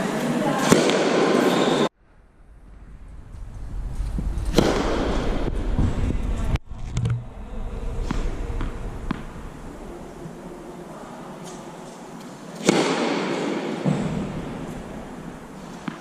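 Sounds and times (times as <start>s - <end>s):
tennis ball hit by racket: 0.6s - 1.7s, 4.5s - 5.3s, 8.0s - 9.3s, 12.6s - 14.7s
tennis ball bouncing on court: 8.1s - 9.3s.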